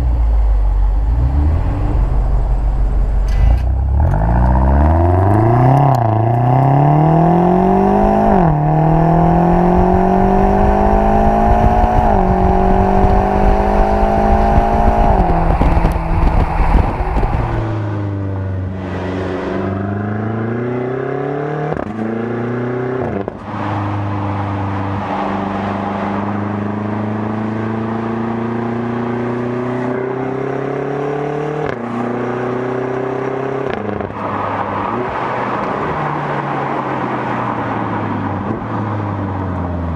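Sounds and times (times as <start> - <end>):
car engine accelerating with upshifts: 0.0 - 39.9.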